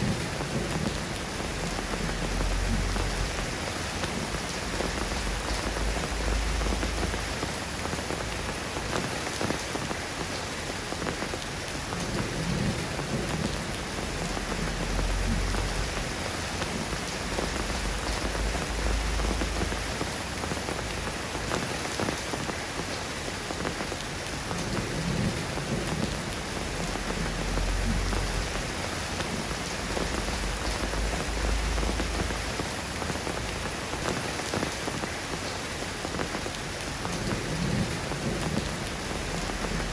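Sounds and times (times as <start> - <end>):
soft rain falling: 0.0 - 39.9
low rumble: 13.8 - 20.0, 26.3 - 34.0.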